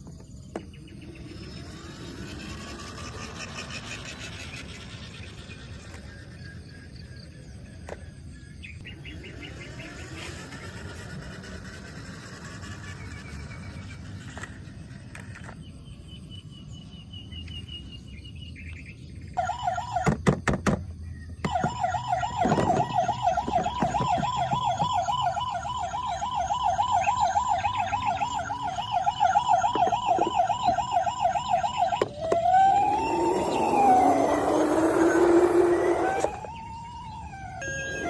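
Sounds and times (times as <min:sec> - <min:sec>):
toy siren warbling and wailing: 0:01.1 - 0:07.0, 0:09.2 - 0:15.3, 0:19.4 - 0:20.2, 0:21.4 - 0:38.0.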